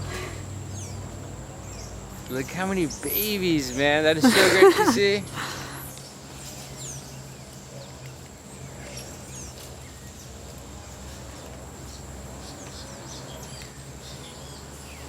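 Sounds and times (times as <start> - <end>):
monkeys chirping: 1.6 - 10.2.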